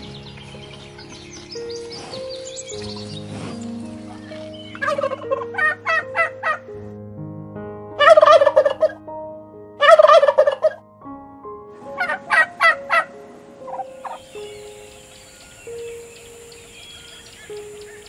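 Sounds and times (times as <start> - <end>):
turkey gobbling: 4.8 - 6.6, 8.0 - 8.9, 9.8 - 10.8, 12.0 - 13.1, 13.7 - 14.2.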